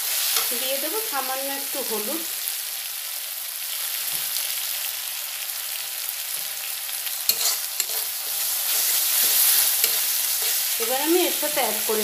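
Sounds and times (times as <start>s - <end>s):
paste sizzling in oil: 0.0s - 12.0s
spatula stirring and scraping pan: 6.3s - 12.0s.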